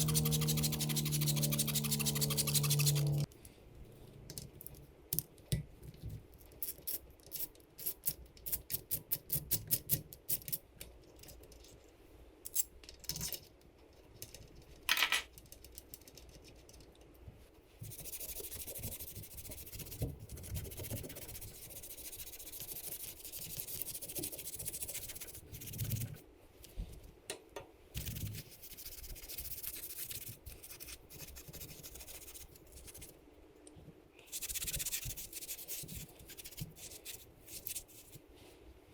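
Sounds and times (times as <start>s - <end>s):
scrubbing engine cases by hand: 0.0s - 3.3s.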